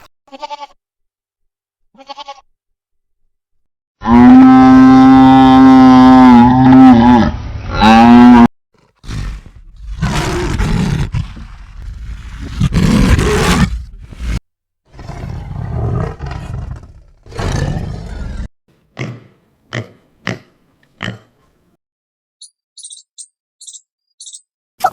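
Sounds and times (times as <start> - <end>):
rough roar-like animal calls: 4.0 - 18.5.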